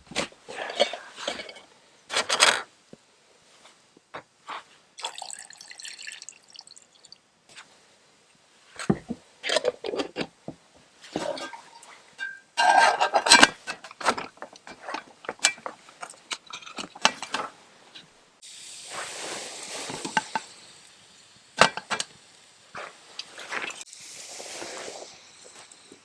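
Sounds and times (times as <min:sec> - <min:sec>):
cookware and utensils clinking: 0:00.5 - 0:02.6, 0:08.9 - 0:10.3, 0:11.1 - 0:17.5, 0:19.8 - 0:21.0, 0:21.6 - 0:22.2
sizzling hiss: 0:18.4 - 0:26.0.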